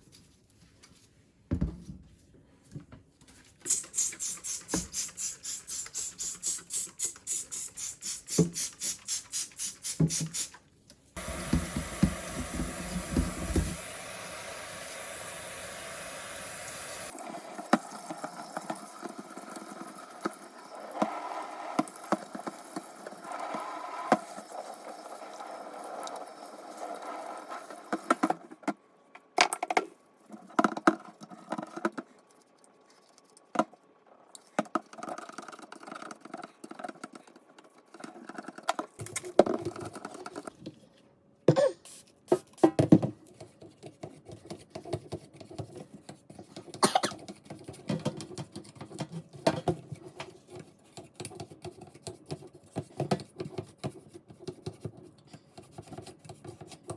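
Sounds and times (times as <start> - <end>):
running water rush: 11.2 - 22.2.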